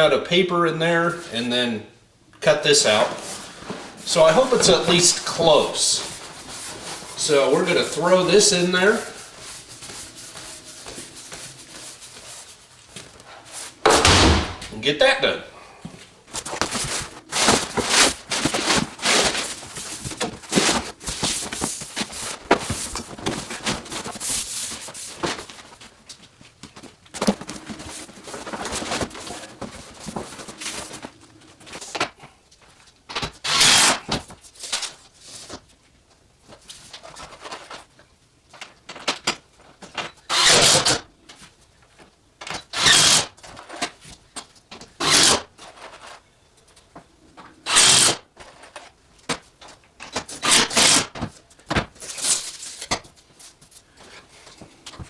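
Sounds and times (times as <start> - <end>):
handling and knocking noise: 12.9 - 14.8
handheld power tool bursts: 33.4 - 34.0, 40.2 - 41.0, 42.7 - 43.3, 45.0 - 45.4, 47.6 - 48.2, 50.4 - 51.1.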